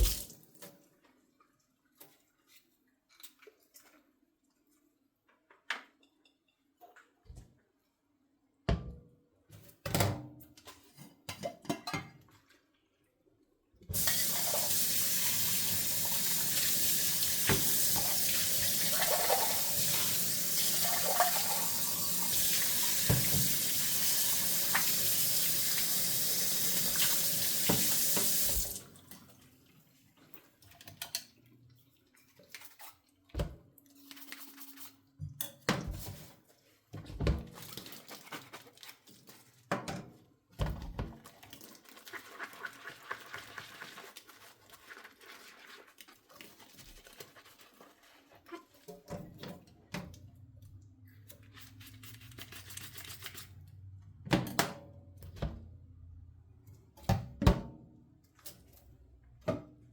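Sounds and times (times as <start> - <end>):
tap water running into sink: 0.0 - 0.4, 13.9 - 29.2.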